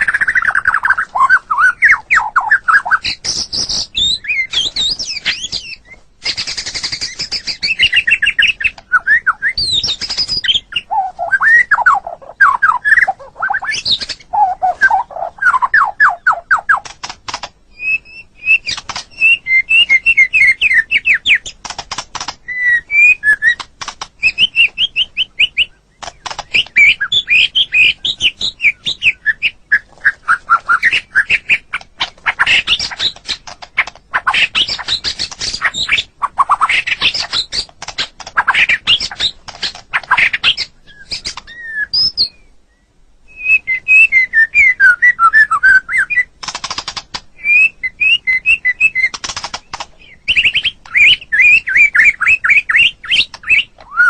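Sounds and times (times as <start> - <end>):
songbird singing varied song: 0.0 - 54.0.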